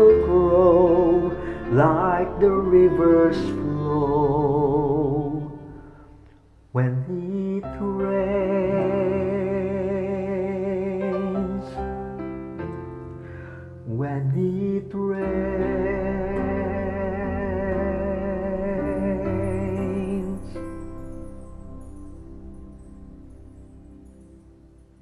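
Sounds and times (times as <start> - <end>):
instrumental accompaniment: 0.0 - 6.6, 15.2 - 25.0
person singing with vibrato: 0.0 - 12.1, 13.8 - 23.4.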